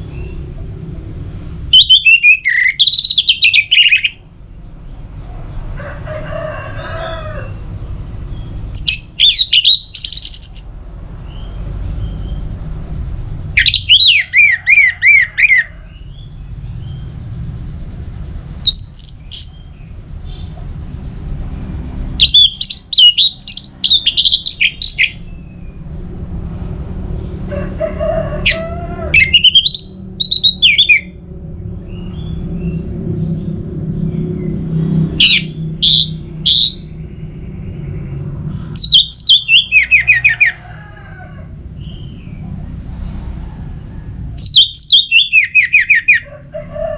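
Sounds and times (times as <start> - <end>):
thrush singing whistles: 1.8 - 4.2
steady low rumble: 15.8 - 39.5.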